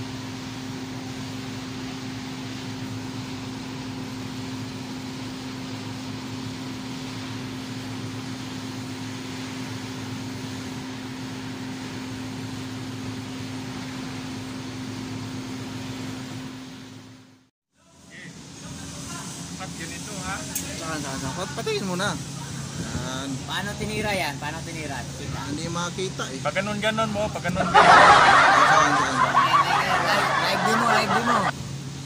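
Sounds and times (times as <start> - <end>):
welding arc hissing: 18.5 - 25.2
low electrical hum: 23.6 - 32.0.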